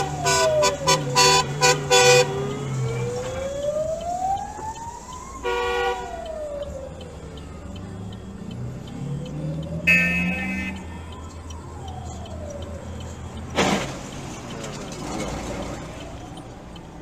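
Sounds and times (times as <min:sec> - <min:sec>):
horn honking: 0:00.0 - 0:02.3, 0:05.4 - 0:06.1, 0:09.8 - 0:10.8
emergency vehicle siren wailing: 0:00.0 - 0:17.0.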